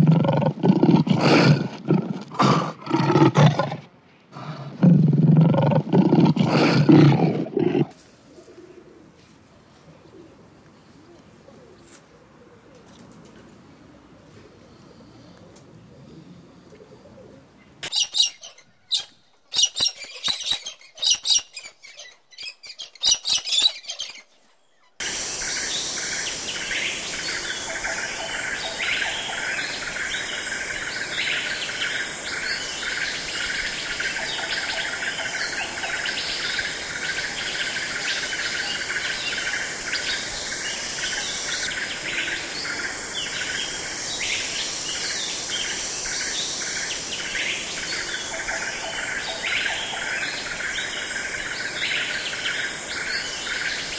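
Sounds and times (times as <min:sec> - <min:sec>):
insects buzzing: 0:25.0 - 0:53.9.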